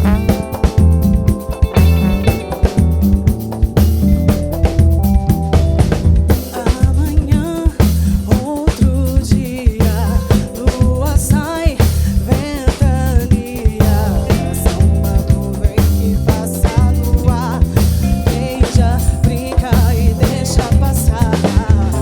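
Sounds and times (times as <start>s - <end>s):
drum kit beat: 0.0s - 22.0s
electric bass: 0.0s - 22.0s
woman singing with vibrato: 6.4s - 22.0s.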